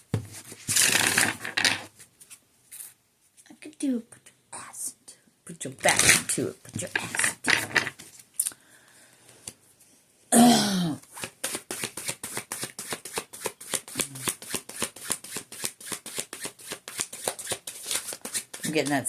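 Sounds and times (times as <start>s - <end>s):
cards being shuffled: 0.1s - 2.9s, 5.9s - 8.3s, 11.0s - 19.0s.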